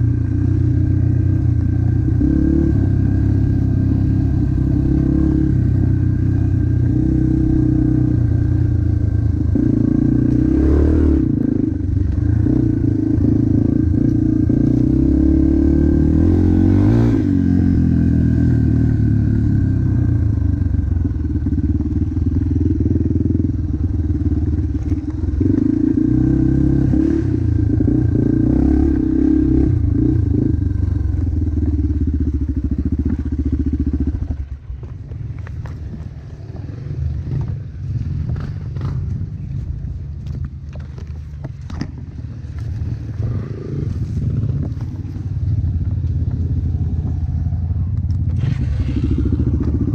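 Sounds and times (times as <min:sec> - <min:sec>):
dirt bike engine revving: 0:01.3 - 0:19.9, 0:48.3 - 0:49.9.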